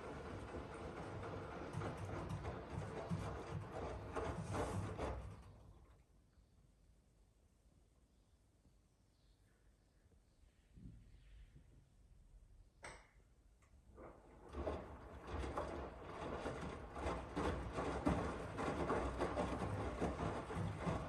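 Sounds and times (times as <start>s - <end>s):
washing machine running: 0.0s - 6.0s, 13.9s - 21.0s.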